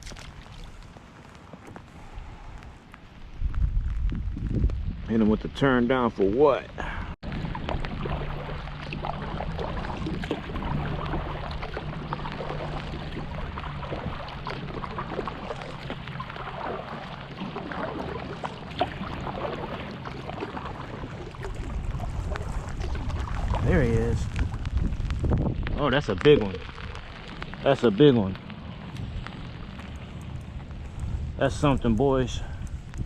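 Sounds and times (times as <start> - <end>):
light rain on water: 0.0 - 33.0
low steady hum: 6.6 - 33.0.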